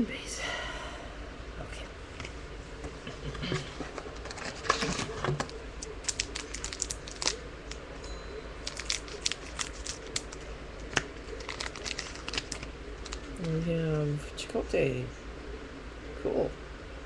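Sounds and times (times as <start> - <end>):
cards and wrapper crinkling: 3.6 - 7.8, 8.6 - 13.6.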